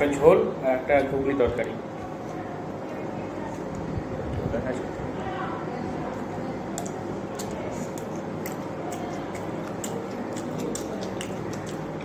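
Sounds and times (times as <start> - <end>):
faint room hum: 0.0 - 12.0
chewing: 6.8 - 12.0.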